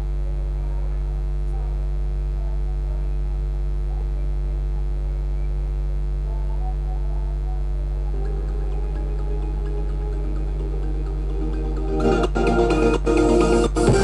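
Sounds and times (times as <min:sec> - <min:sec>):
low electrical hum: 0:00.0 - 0:14.0
faint wavering tones: 0:06.7 - 0:13.7.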